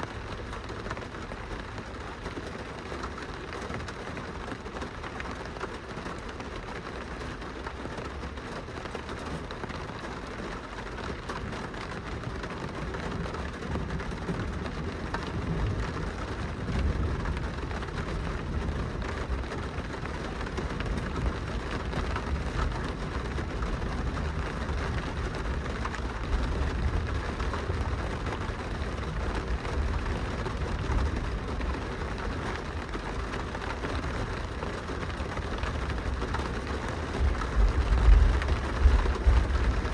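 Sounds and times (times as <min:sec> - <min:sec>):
rain pattering on glass: 0:00.0 - 0:39.9
low rumble: 0:37.2 - 0:39.9.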